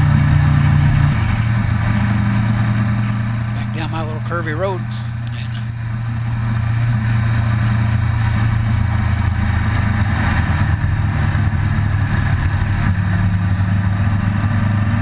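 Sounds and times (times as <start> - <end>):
road and wind noise: 0.0 - 15.0
vehicle engine running: 0.0 - 15.0.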